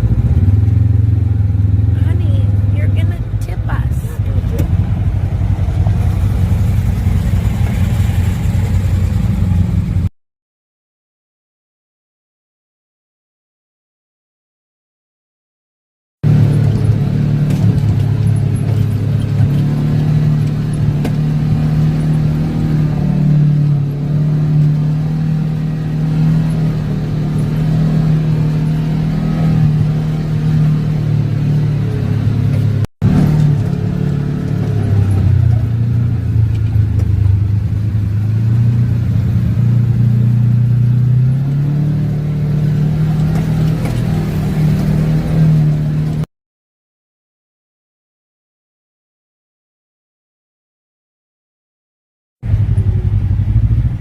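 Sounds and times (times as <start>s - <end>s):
off-road vehicle engine running: 0.0s - 10.1s, 16.2s - 46.3s, 52.4s - 54.0s.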